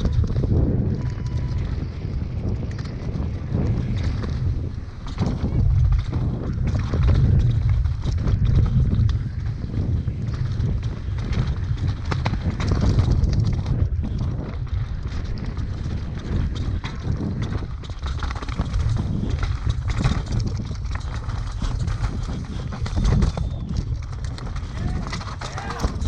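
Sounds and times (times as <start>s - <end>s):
mountain bike rattling on trail: 0.0s - 26.0s
wind rumble on microphone: 0.0s - 26.0s.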